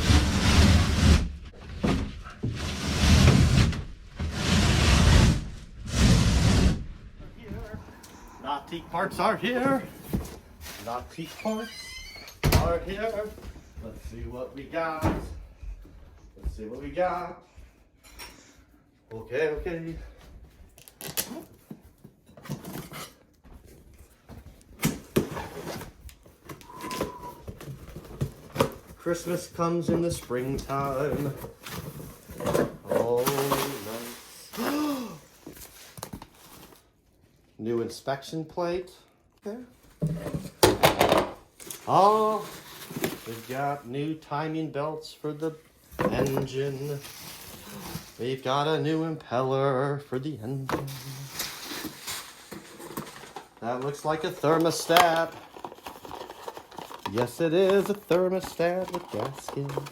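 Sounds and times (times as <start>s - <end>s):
cardboard box packing handled: 9.4s - 11.3s, 24.3s - 37.0s, 41.6s - 43.8s, 45.8s - 48.2s, 50.6s - 59.9s.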